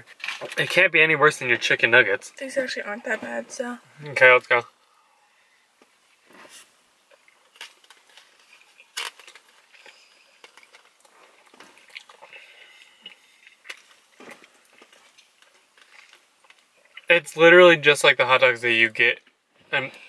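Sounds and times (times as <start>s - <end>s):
people chewing: 4.0s - 18.0s, 19.6s - 20.0s.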